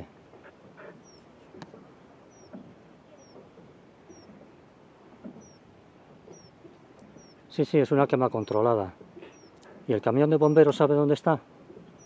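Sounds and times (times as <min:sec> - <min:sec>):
small bird chirping: 0:00.9 - 0:01.3, 0:02.2 - 0:04.4, 0:05.3 - 0:09.7, 0:10.4 - 0:10.8.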